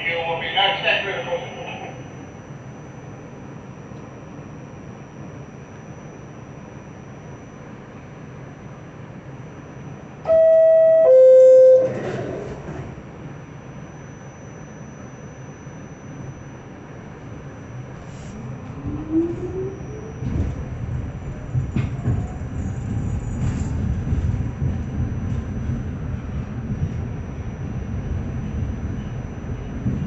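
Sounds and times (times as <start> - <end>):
train wheels rumbling: 18.6 - 30.0.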